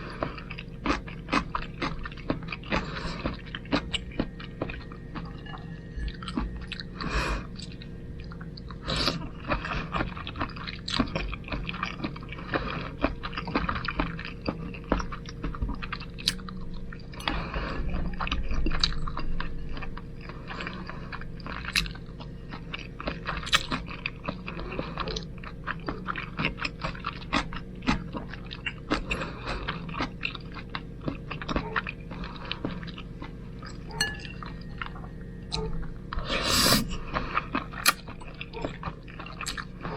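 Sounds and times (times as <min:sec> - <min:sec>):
steady low hum: 0:00.0 - 0:39.9
person chewing and slurping: 0:36.2 - 0:39.9.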